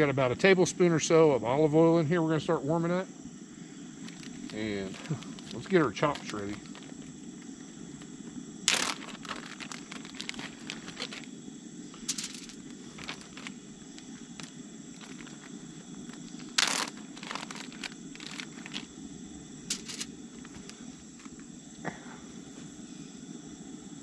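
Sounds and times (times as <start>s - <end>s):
camp stove burner rushing: 3.3s - 21.8s
plastic packaging crinkling and tearing: 4.0s - 7.1s, 8.0s - 11.3s, 12.0s - 18.9s, 19.7s - 20.7s.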